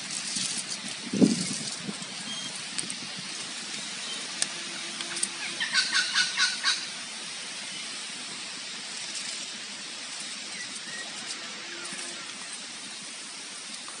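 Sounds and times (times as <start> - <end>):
steady background hiss: 0.0 - 14.0
bird calling: 3.8 - 6.9.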